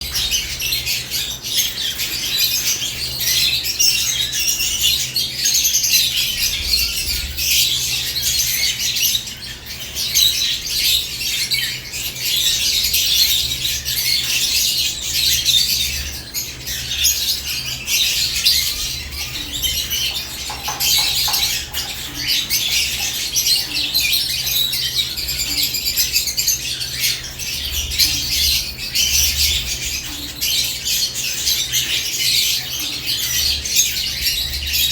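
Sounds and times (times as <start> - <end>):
lovebirds chirping and chattering: 0.0 - 34.9.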